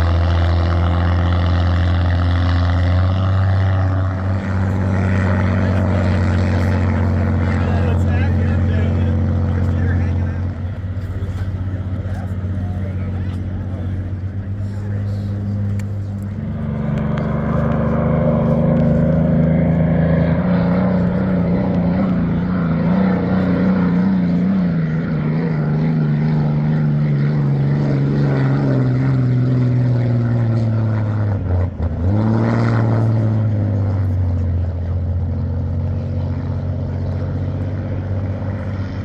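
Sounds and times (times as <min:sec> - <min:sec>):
hydroplane engine running hard: 0:00.0 - 0:39.0.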